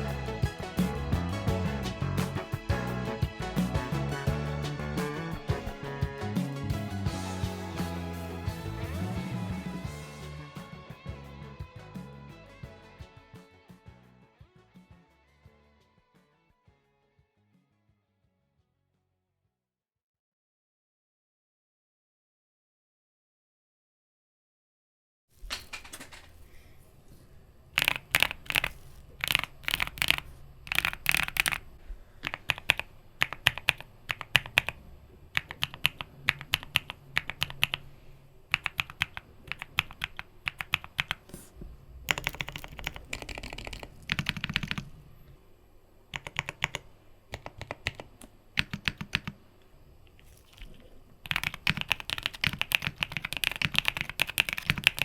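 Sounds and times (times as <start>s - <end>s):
mechanical keyboard typing: 27.8s - 37.8s, 38.5s - 41.4s, 42.1s - 45.0s, 46.1s - 49.4s, 50.2s - 55.0s.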